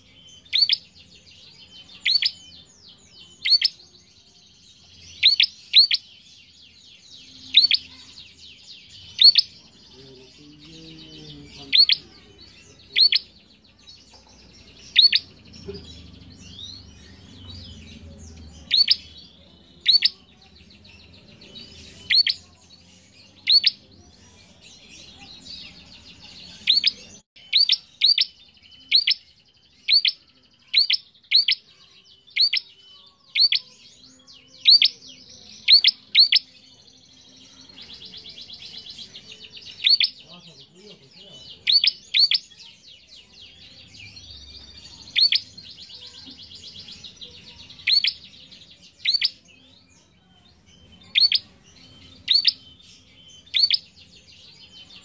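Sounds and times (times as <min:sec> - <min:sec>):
bird sharp high calls: 0:00.0 - 0:01.0, 0:02.0 - 0:02.5, 0:03.3 - 0:03.8, 0:05.1 - 0:06.0, 0:07.4 - 0:08.2, 0:09.0 - 0:09.6, 0:11.7 - 0:12.2, 0:12.9 - 0:13.3, 0:14.8 - 0:15.3, 0:18.6 - 0:19.2, 0:19.8 - 0:20.2, 0:21.8 - 0:22.6, 0:23.4 - 0:23.8, 0:26.6 - 0:33.8, 0:39.6 - 0:40.2, 0:41.6 - 0:42.5, 0:47.7 - 0:48.2, 0:51.1 - 0:51.5, 0:52.2 - 0:52.6.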